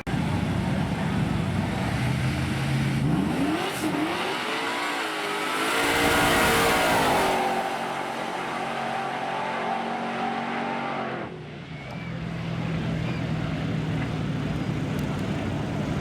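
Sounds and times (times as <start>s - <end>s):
low engine rumble: 0.0s - 3.3s, 11.3s - 16.0s
truck engine high-pitched: 0.0s - 16.0s.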